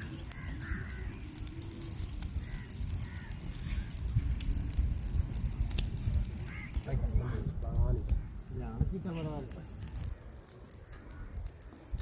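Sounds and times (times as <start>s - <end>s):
birds calling: 0.0s - 4.5s, 6.4s - 11.9s.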